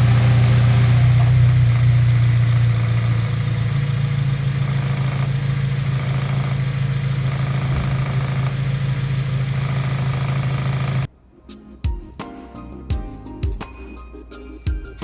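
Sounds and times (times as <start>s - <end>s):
car engine low drone: 0.0s - 11.1s.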